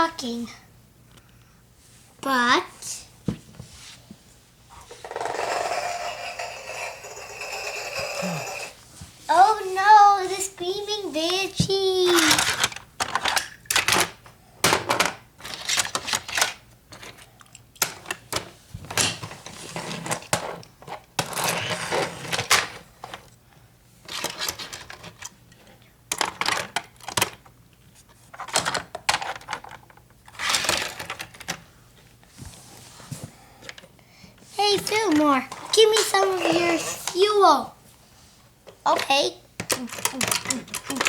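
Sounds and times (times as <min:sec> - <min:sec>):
toys scraping and sliding: 0:04.8 - 0:08.8, 0:34.7 - 0:37.6
plastic toys clicking and clattering: 0:10.6 - 0:23.3, 0:24.1 - 0:27.5, 0:28.3 - 0:31.6, 0:34.6 - 0:37.6, 0:38.9 - 0:41.0.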